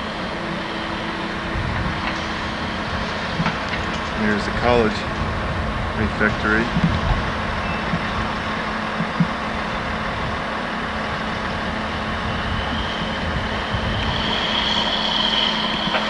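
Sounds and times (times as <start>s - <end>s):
heavy vehicle engine humming: 0.0s - 16.0s
high whine: 0.0s - 16.0s.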